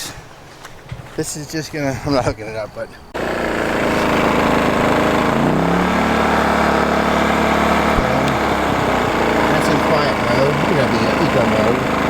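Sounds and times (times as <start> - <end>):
generator engine running: 3.1 - 12.0.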